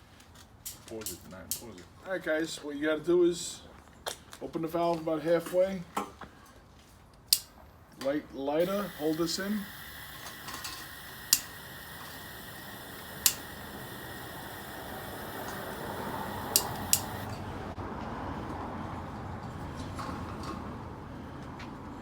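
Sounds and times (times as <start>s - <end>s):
hiss of propane burner: 8.6s - 17.4s
lighter sparking clicks: 8.6s - 17.4s.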